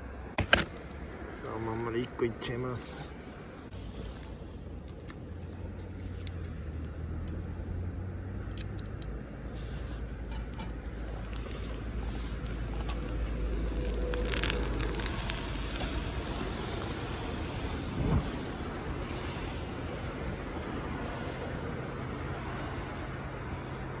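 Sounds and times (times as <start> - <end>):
butter sizzling in a pan: 13.4 - 18.0.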